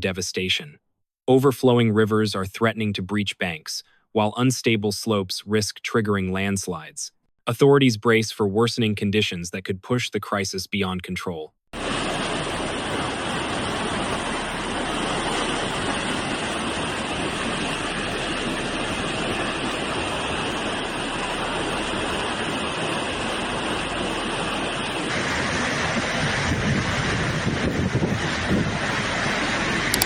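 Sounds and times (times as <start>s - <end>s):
floodwater rushing: 11.8s - 30.0s.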